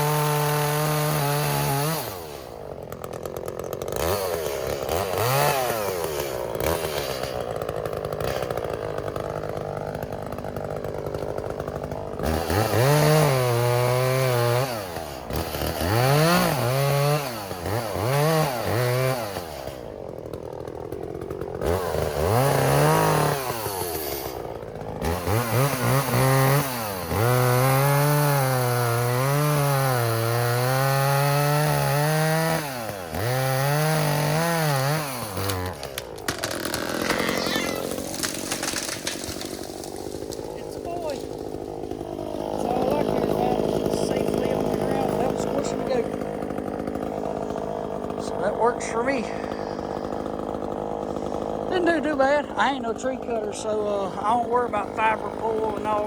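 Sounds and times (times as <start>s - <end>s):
chainsaw revving and cutting: 0.0s - 56.0s.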